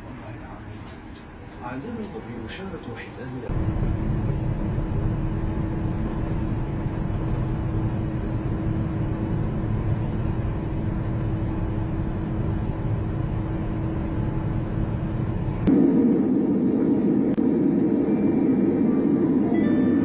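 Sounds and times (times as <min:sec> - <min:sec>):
jet airliner cabin drone: 0:00.0 - 0:20.0.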